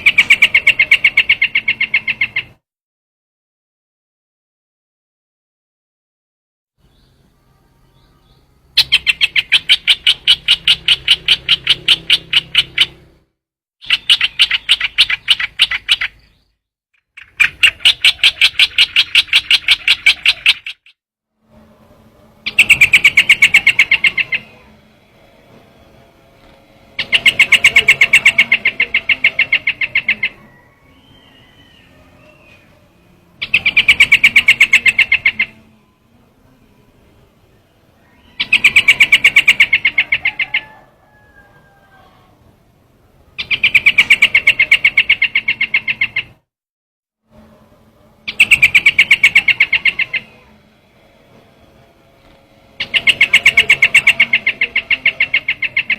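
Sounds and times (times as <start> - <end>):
bird chattering calls: 0.0 - 2.6, 8.8 - 13.1, 13.8 - 16.4, 17.1 - 21.0, 22.4 - 24.8, 26.9 - 32.7, 33.4 - 35.7, 38.2 - 40.8, 43.4 - 46.4, 48.3 - 50.4, 52.8 - 55.9.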